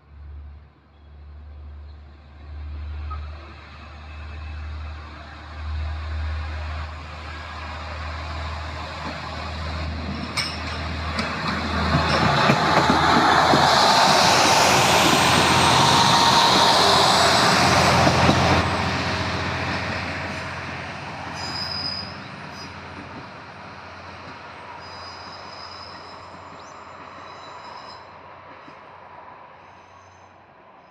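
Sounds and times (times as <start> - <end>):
diesel railcar passing: 0.0 - 30.9
high wheel squeals: 21.3 - 22.8, 24.7 - 28.2.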